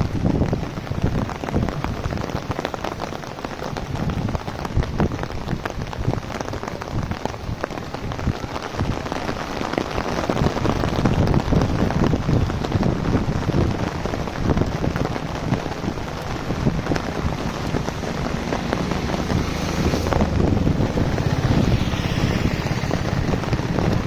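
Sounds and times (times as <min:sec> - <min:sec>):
heavy rain on an umbrella: 0:00.0 - 0:24.0.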